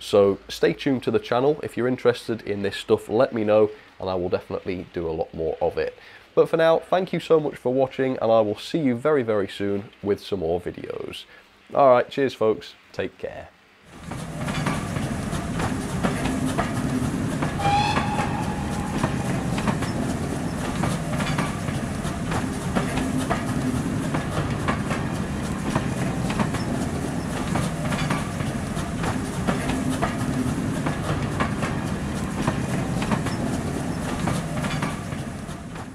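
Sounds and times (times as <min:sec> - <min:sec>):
train rumbling on rails: 0:13.9 - 0:35.9
wheels clicking over track: 0:13.9 - 0:35.9
brief high tone: 0:17.6 - 0:19.5.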